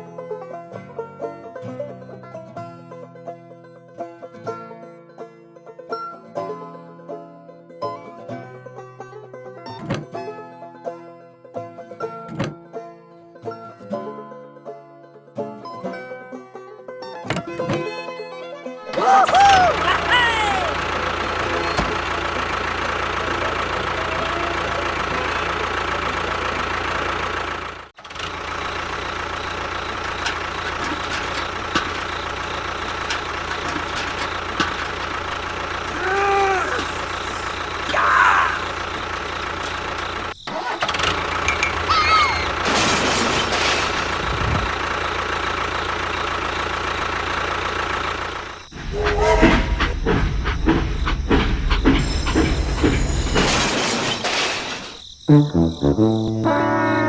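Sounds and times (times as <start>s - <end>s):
rising and falling chirps: 48.7s - 57.0s.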